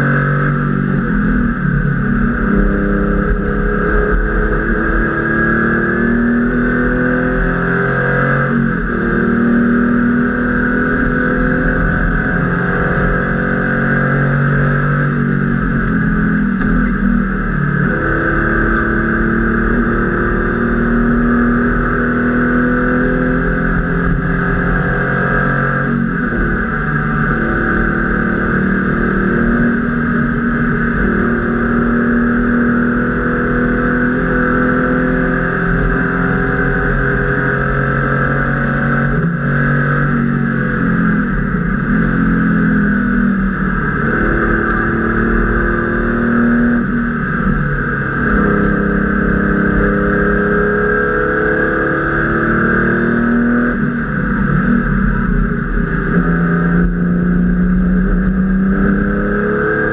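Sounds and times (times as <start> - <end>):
race car engine at full throttle: 0.0 - 59.9.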